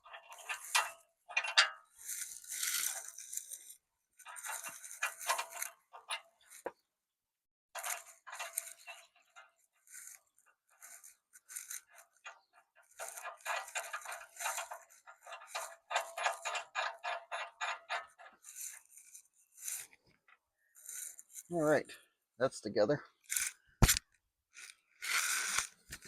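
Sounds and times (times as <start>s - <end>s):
metallic clicks and rattles of tools: 0.0s - 6.7s, 7.8s - 21.5s.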